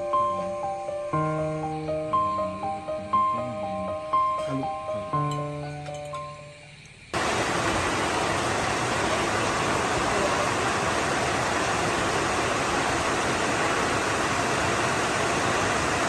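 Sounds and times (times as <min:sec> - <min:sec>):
falling water rushing: 0:07.2 - 0:16.0.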